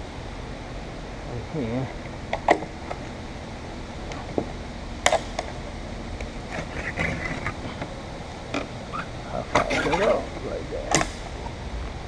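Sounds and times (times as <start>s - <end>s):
metal tool scraping metal: 9.6s - 10.2s.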